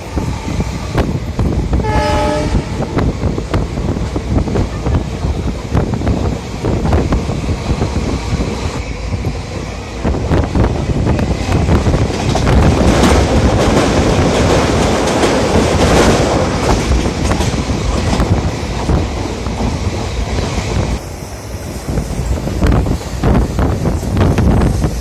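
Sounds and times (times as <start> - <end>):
train wheels clattering on rails: 10.1 - 25.0.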